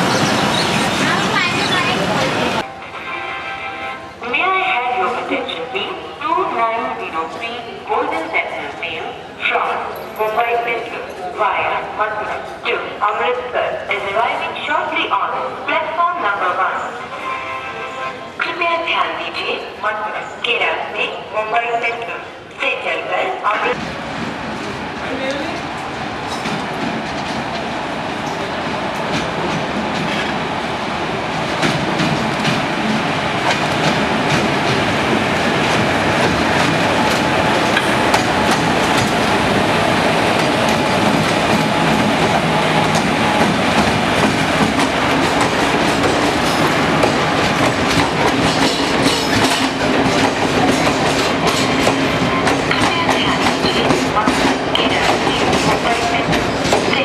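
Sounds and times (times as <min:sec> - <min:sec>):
train wheels clicking over rails: 0:31.3 - 0:57.0.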